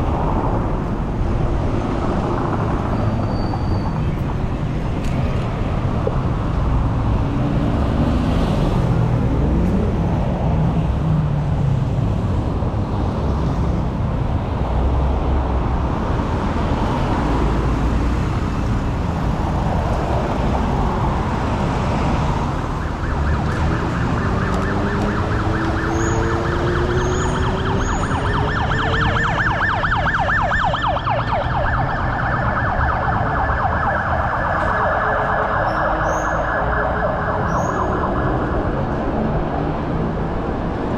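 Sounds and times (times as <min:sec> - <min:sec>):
road traffic noise: 0:00.0 - 0:40.9
emergency vehicle siren: 0:16.7 - 0:40.9.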